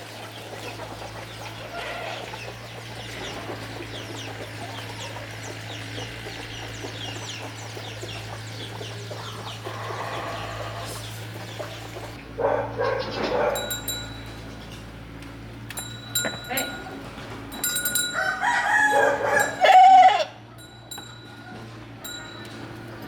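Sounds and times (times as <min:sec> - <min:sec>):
chickens clucking: 0:00.0 - 0:15.0, 0:15.7 - 0:22.5
chicks peeping: 0:00.2 - 0:12.2
loud chicken call: 0:09.6 - 0:11.0, 0:18.2 - 0:20.5.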